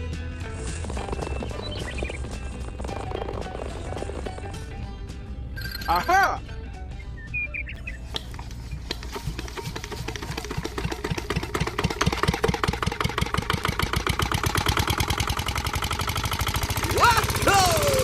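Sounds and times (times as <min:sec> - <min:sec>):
tractor engine knocking: 0:00.6 - 0:04.8, 0:07.9 - 0:18.0.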